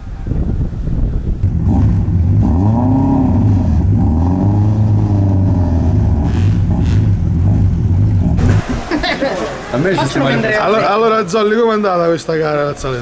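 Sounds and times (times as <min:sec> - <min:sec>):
rally car engine running: 0:01.3 - 0:09.7.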